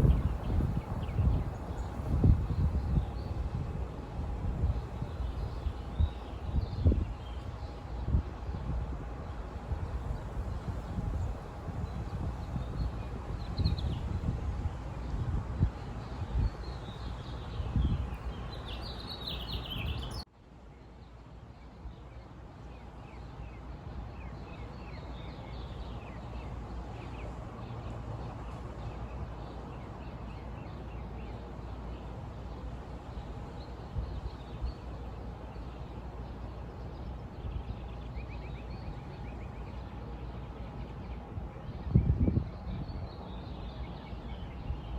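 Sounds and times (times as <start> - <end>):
outdoor background rumble and hiss: 0.0 - 44.9
small birds chirping: 15.8 - 20.2.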